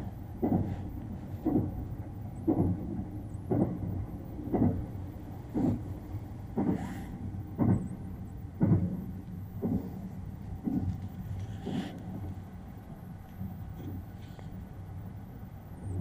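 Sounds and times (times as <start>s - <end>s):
train rumbling: 0.0s - 16.0s
wheels knocking on rail joints: 0.4s - 12.4s.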